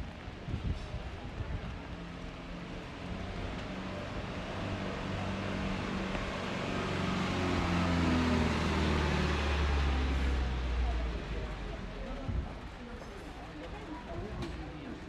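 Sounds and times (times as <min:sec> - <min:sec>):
vehicle engine approaching: 0:00.1 - 0:13.1.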